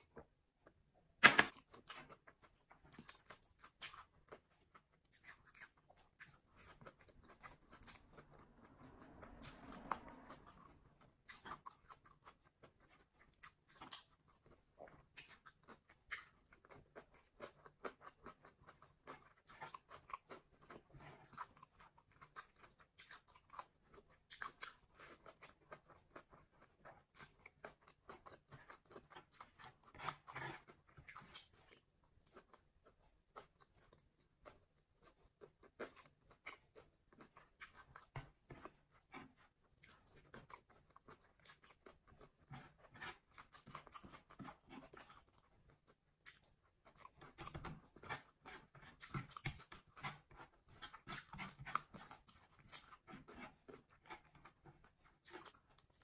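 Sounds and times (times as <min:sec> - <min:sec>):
soft wet chewing: 0:01.5 - 0:56.0.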